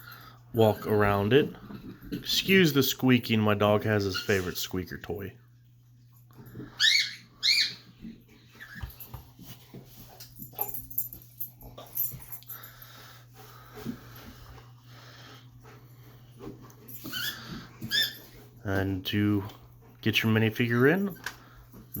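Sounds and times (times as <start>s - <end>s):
squeaker toy squeaking: 6.8s - 7.8s, 17.0s - 18.3s.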